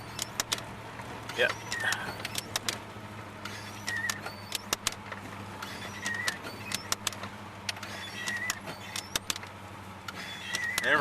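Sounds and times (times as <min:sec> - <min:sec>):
short squeak: 0:00.0 - 0:00.5, 0:01.3 - 0:02.7, 0:03.4 - 0:05.0, 0:05.6 - 0:07.2, 0:07.8 - 0:09.4, 0:10.1 - 0:11.0
cab rattles and clicks: 0:00.0 - 0:11.0
truck engine hum: 0:00.0 - 0:11.0.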